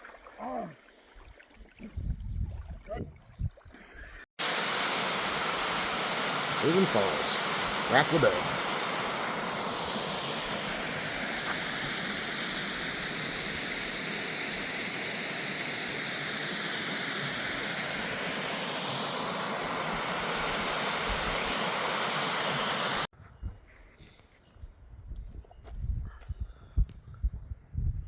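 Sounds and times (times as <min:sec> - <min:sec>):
waterfall rushing: 0:04.4 - 0:23.1.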